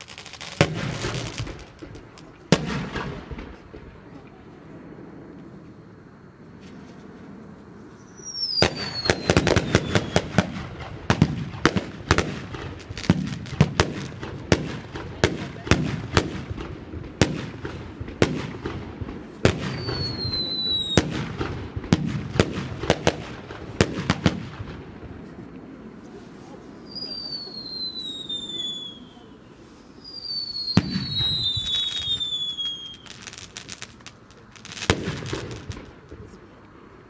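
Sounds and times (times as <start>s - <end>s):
firework whistles gliding down: 0.0s - 4.1s, 6.6s - 14.9s, 19.4s - 24.7s, 26.2s - 36.0s
firework crackling: 0.0s - 4.3s, 7.9s - 36.6s
firework bangs: 0.0s - 4.4s, 8.0s - 36.6s.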